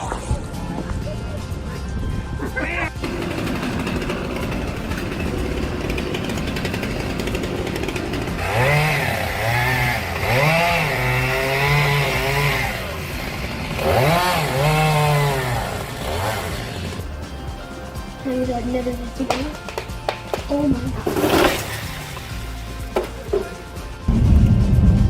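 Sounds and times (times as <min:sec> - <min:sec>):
chainsaw revving: 0:03.0 - 0:18.2, 0:21.0 - 0:23.9.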